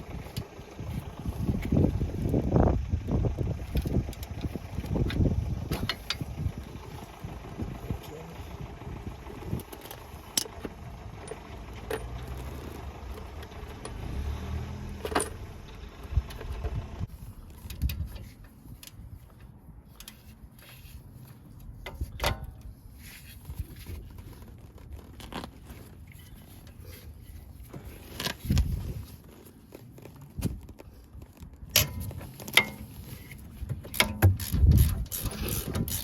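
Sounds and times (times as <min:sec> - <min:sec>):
metal tools clinking: 0:31.8 - 0:36.0.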